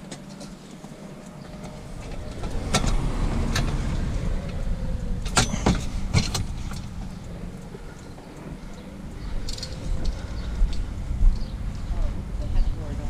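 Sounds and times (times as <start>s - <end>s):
vehicle engine rumble: 0.0s - 13.0s
sharp knocks and clanks: 5.2s - 7.3s.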